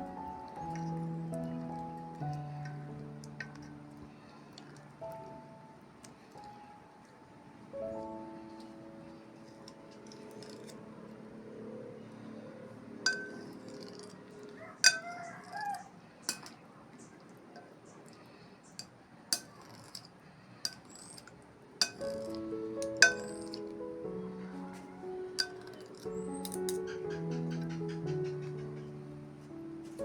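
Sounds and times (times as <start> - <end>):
utensils clinking on dishes: 13.1 - 14.1, 14.8 - 15.7, 16.3 - 16.6, 18.7 - 23.7, 25.4 - 27.7.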